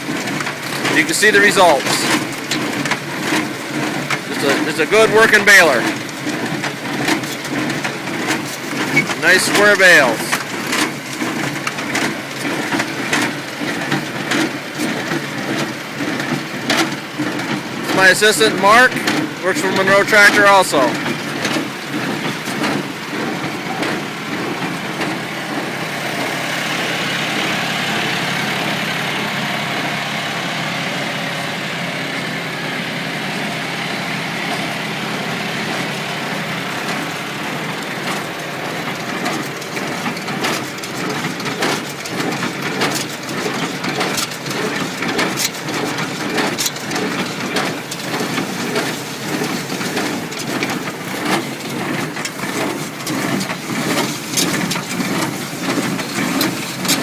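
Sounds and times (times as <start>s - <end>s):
hay baler running: 0.0s - 57.0s
baler sharp clacks: 0.2s - 25.3s.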